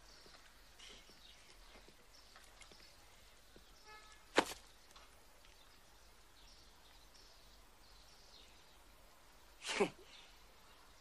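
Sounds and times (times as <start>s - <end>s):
birds chirping: 0.0s - 11.0s
sharp smack: 4.3s - 4.6s.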